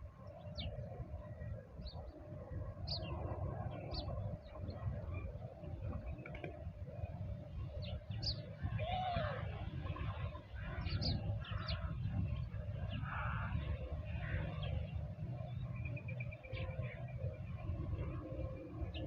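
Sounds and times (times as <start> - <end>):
steady low rumble: 9.5 - 19.0
small birds chirping: 10.2 - 17.7.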